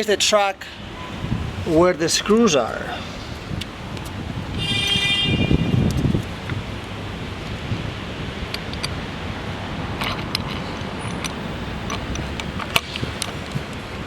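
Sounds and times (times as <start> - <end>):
steady low background noise: 6.3 - 14.0.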